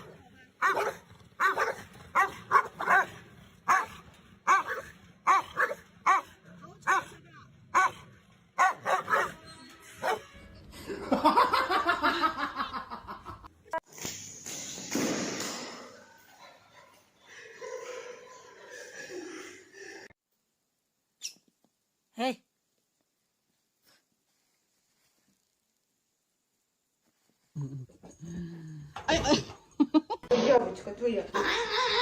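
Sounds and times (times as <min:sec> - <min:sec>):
dog barking: 0:00.0 - 0:10.3.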